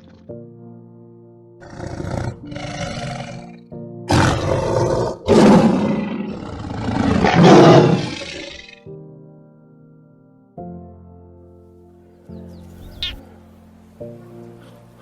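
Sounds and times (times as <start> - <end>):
soft background music: 0.0 - 15.0
large animal roaring: 1.6 - 8.7.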